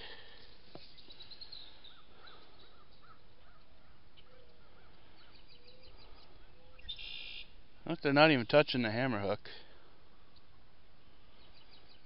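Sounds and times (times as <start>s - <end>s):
steady low hiss: 0.0s - 12.0s
bird calling in clipped notes: 0.3s - 8.6s.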